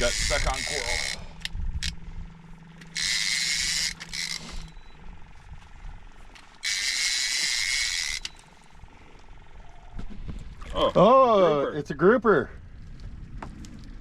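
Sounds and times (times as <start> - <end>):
fishing reel buzzing: 0.0 - 2.0, 2.8 - 5.0, 6.6 - 8.8
low steady hum: 0.0 - 14.0.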